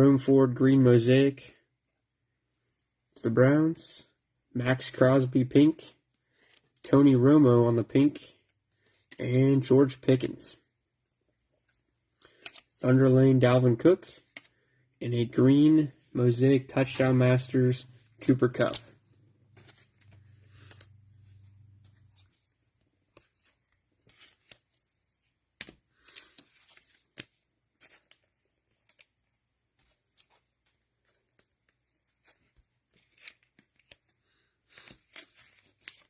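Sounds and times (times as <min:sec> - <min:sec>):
trading cards rustling: 0:11.5 - 0:12.9, 0:14.0 - 0:14.6, 0:15.2 - 0:36.0.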